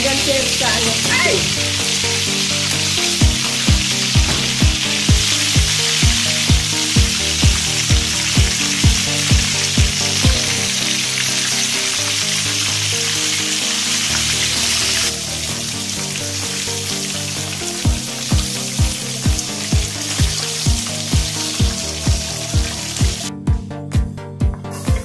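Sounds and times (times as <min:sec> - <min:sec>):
chicken frying in hot oil: 0:00.0 - 0:23.3
background music with bass: 0:00.0 - 0:25.0
drum beat: 0:03.2 - 0:11.0, 0:17.9 - 0:25.0.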